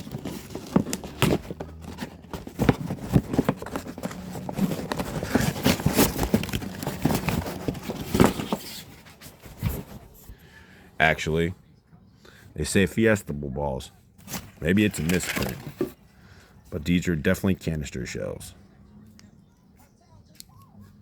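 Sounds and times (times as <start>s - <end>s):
packaging rustling: 0.0s - 10.2s, 14.2s - 16.0s.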